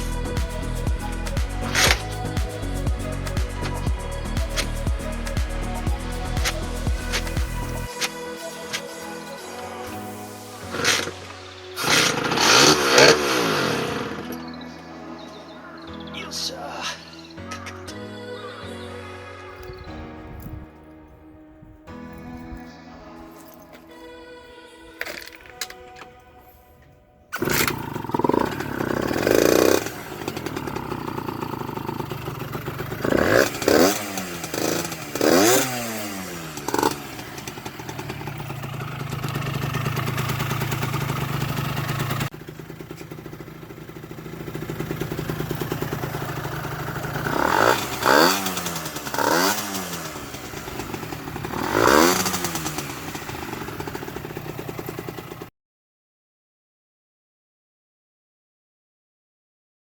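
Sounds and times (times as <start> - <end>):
two-stroke moped engine revving: 0.0 - 9.0, 10.6 - 14.5, 27.4 - 55.5.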